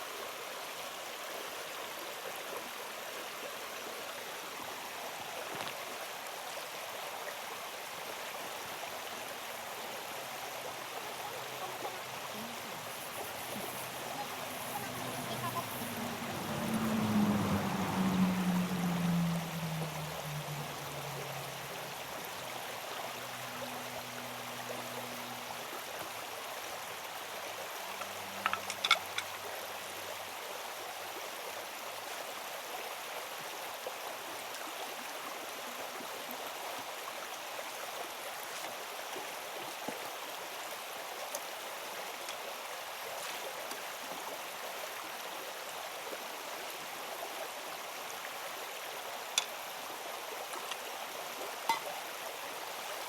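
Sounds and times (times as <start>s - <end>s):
water flowing: 0.0s - 53.0s.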